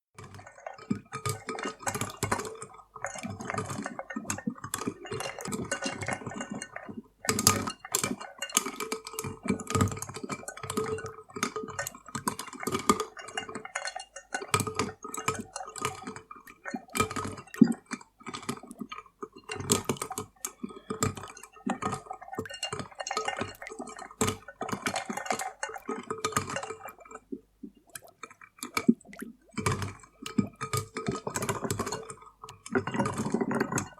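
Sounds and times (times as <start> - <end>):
drink being stirred: 0.2 - 33.9
ice cubes clinking in a drink: 0.4 - 27.2, 29.6 - 33.9.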